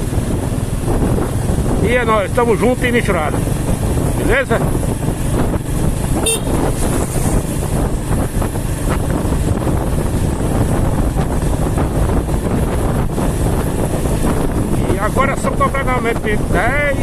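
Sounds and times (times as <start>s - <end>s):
vehicle driving on road: 0.0s - 17.0s
wind buffeting microphone: 0.0s - 17.0s.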